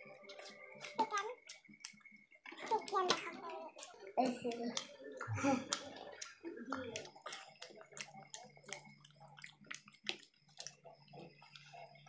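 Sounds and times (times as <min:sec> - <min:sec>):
wet chewing and lip-smacking: 0:05.7 - 0:11.9.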